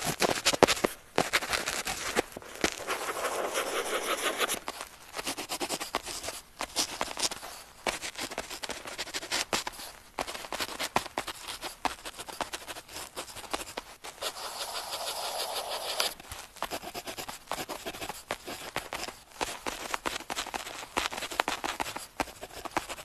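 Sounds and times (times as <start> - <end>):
pen scratching on paper: 1.8 - 4.6, 5.2 - 7.3, 10.3 - 23.0.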